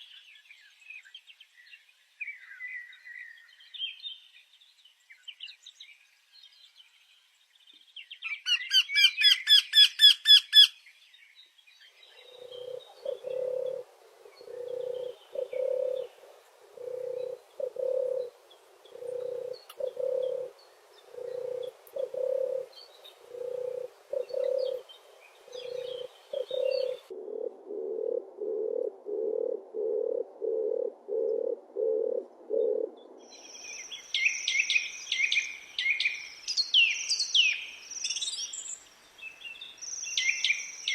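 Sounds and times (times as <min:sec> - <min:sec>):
low hooting bird calls: 0:12.0 - 0:38.7
high bird chirping: 0:18.9 - 0:27.1.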